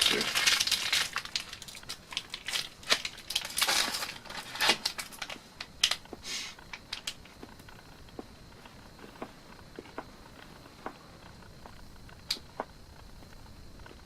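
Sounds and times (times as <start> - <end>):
bubble wrap crinkling and snapping: 0.0 - 7.7.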